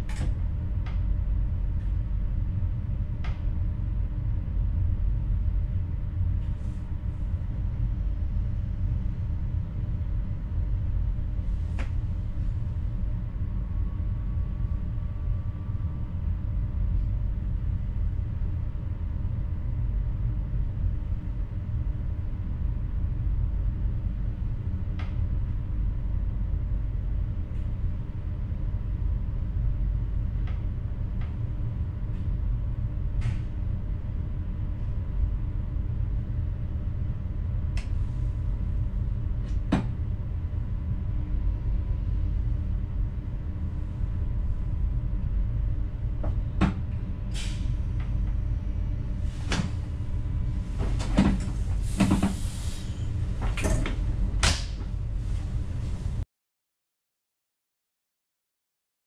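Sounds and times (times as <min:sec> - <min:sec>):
train cab rumble and hum: 0:00.0 - 0:56.2.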